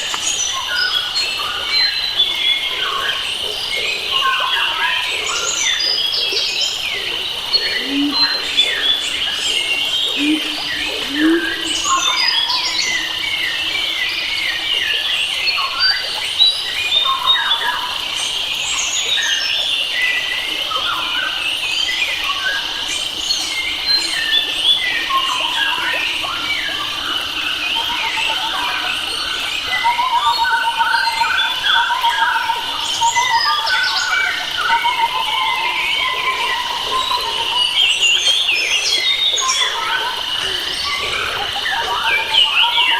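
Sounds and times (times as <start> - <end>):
birds chirping and whistling: 4.2 - 16.0, 36.6 - 42.9
high-pitched drone: 7.5 - 13.3.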